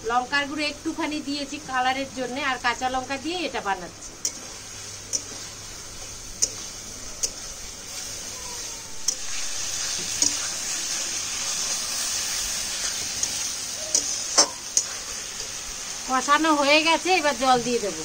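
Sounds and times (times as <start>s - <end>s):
food sizzling in a pan: 0.0s - 18.0s
spatula clicking against pan: 5.1s - 5.3s, 6.4s - 6.6s.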